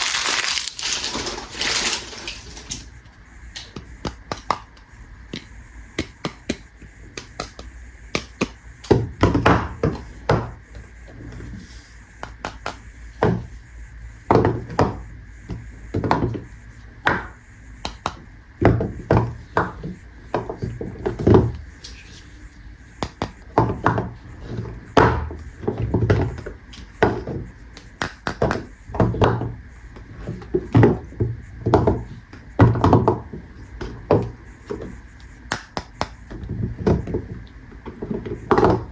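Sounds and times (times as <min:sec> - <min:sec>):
packaging crinkling: 0:00.0 - 0:02.9.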